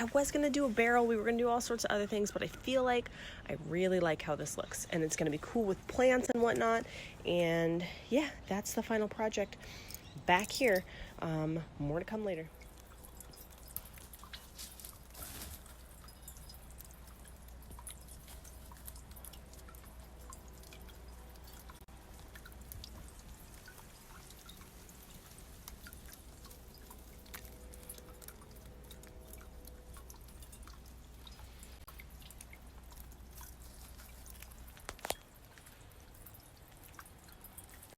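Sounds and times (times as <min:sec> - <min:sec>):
faint water dripping: 0:00.0 - 0:37.9.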